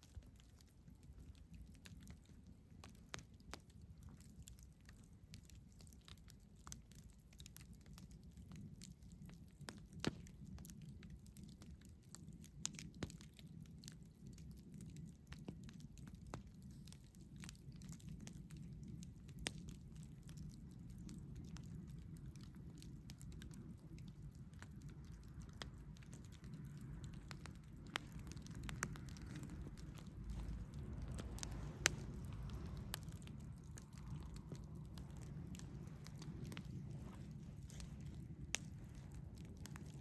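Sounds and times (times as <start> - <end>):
campfire crackling: 0.0 - 40.0
low steady rumble: 18.6 - 40.0.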